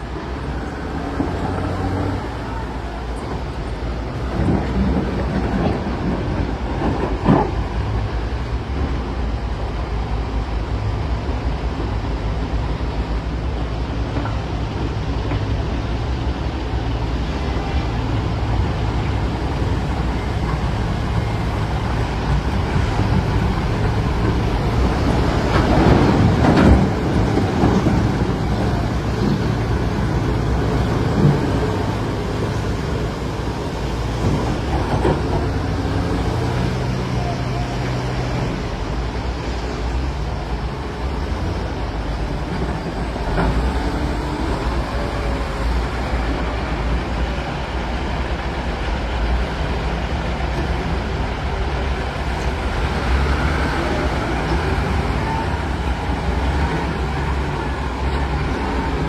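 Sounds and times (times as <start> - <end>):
diesel loader droning: 0.0 - 6.2, 17.0 - 48.4, 50.7 - 59.0.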